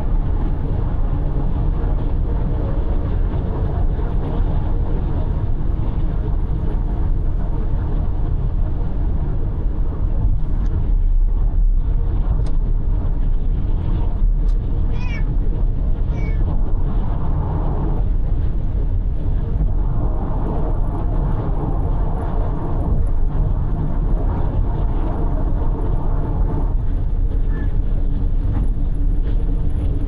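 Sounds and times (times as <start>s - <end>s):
car road and engine rumble: 0.0s - 30.0s
cat meowing: 14.9s - 15.3s, 16.1s - 16.4s.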